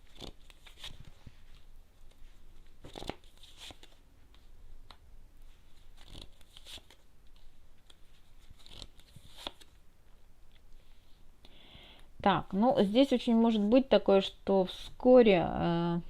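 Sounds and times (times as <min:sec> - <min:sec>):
cards rustling and slapping: 0:00.0 - 0:04.5, 0:05.7 - 0:09.8.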